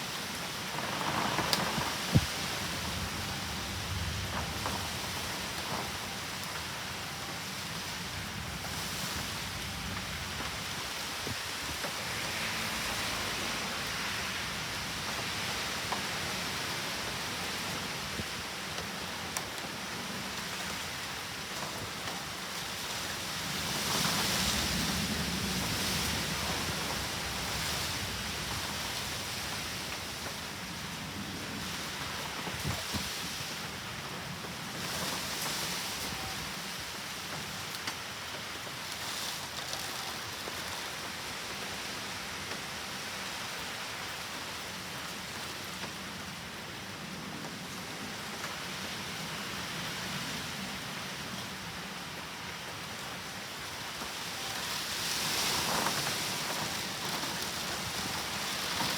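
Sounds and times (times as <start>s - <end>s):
wind gusts: 0.0s - 38.8s
heavy rain downpour: 0.0s - 58.9s.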